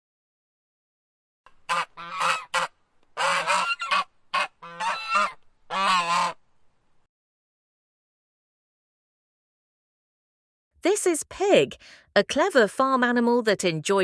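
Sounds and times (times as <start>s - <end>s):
goose honking: 1.6s - 6.4s.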